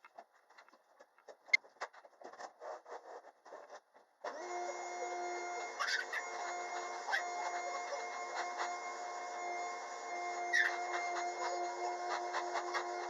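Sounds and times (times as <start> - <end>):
vacuum cleaner running: 4.3 - 13.0.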